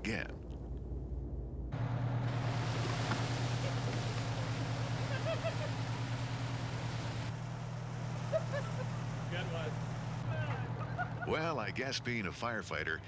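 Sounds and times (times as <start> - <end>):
water spraying from hose: 1.8 - 12.2
fire truck engine running: 1.8 - 13.0.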